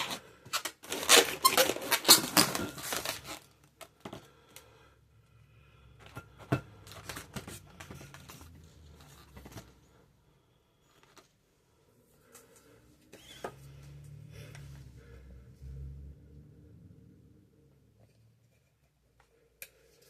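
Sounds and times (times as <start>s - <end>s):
rubbing of rubber balloons: 0.0s - 3.4s.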